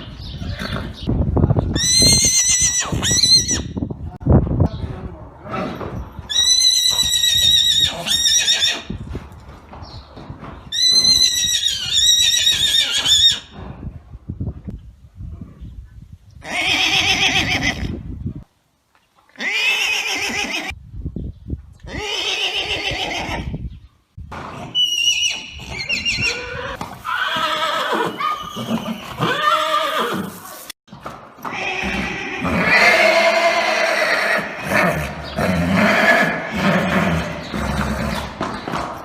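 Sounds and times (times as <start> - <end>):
horses neighing: 19.3 - 20.8, 24.6 - 30.7, 31.4 - 38.7.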